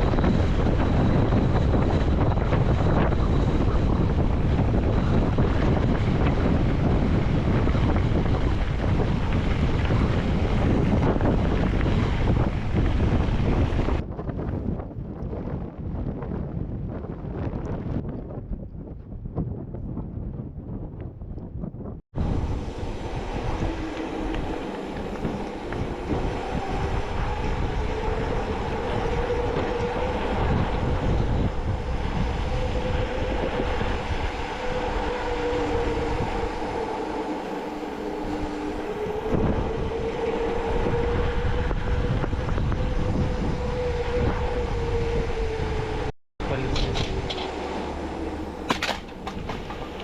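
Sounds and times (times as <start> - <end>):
whine drifting in pitch: 0.0 - 14.0, 22.2 - 50.0
car engine and road rumble: 46.4 - 50.0.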